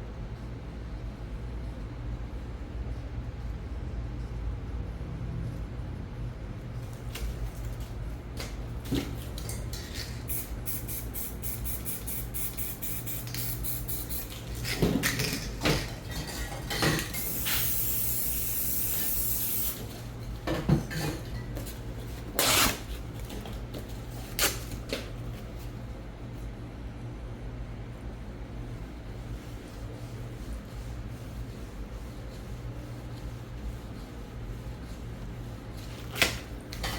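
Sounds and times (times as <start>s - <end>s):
spray paint can spraying: 10.3s - 14.6s, 17.1s - 19.9s.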